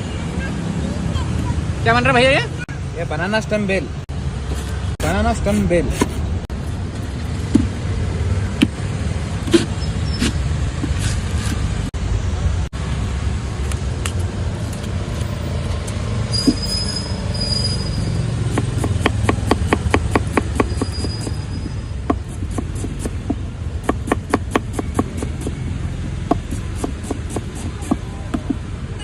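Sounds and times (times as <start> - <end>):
low traffic rumble: 0.0 - 29.0
brief high squeal: 16.3 - 18.2.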